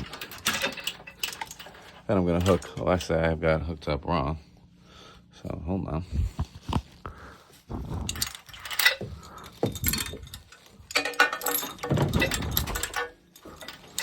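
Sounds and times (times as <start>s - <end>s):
chain rattling and clinking: 0.0s - 3.4s, 7.8s - 14.0s.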